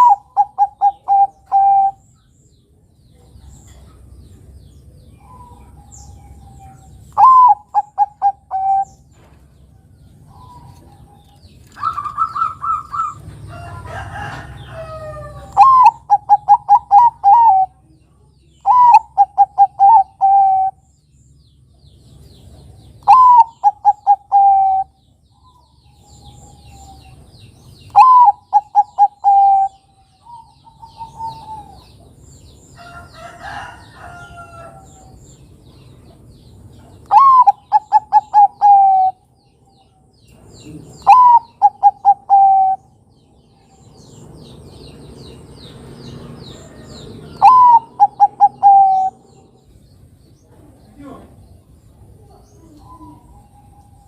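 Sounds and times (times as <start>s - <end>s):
dove cooing song: 0.0s - 2.3s, 3.1s - 17.9s, 18.5s - 20.9s, 22.4s - 35.3s, 36.8s - 49.8s, 51.9s - 54.0s
faint bird chirps: 46.7s - 54.0s.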